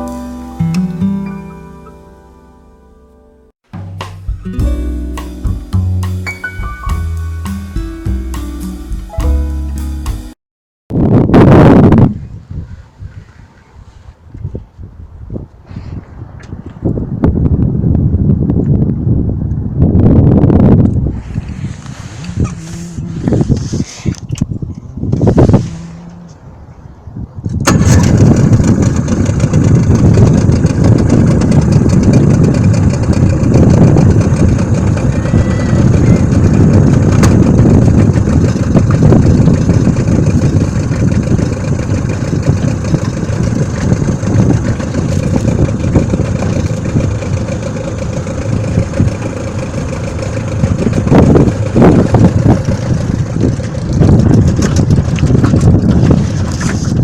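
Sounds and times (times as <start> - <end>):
outboard motor running: 20.7 - 26.9, 27.6 - 57.0.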